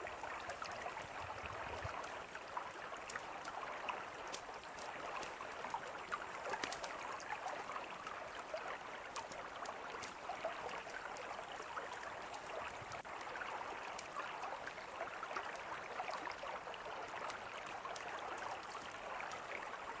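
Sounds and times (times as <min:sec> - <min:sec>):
mountain river babbling: 0:00.0 - 0:20.0
campfire crackling and popping: 0:04.3 - 0:07.0, 0:09.0 - 0:11.3.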